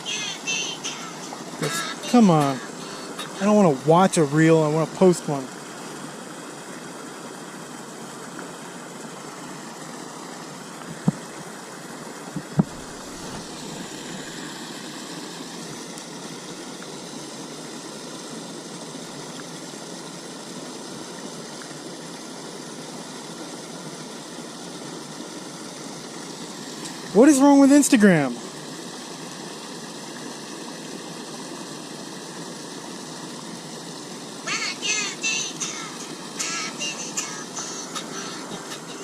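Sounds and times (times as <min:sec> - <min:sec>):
steady background hum: 0:00.0 - 0:39.0.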